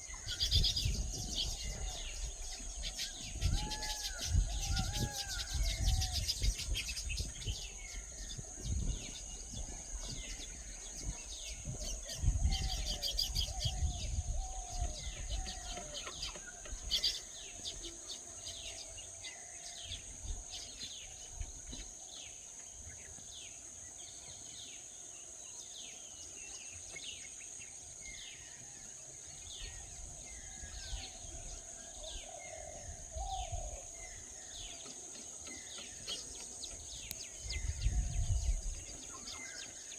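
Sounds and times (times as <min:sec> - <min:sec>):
birds chirping: 0:29.4 - 0:39.9.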